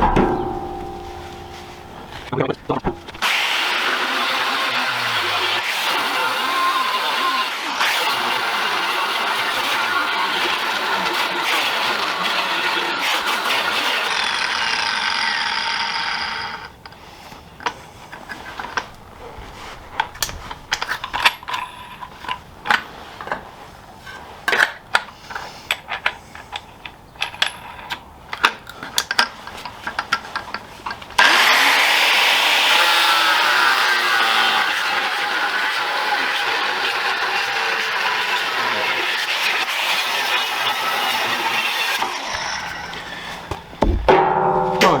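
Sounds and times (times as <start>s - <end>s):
knocks and clicks: 0.0s - 3.2s, 43.5s - 44.3s
angle grinder cutting steel: 31.2s - 43.2s.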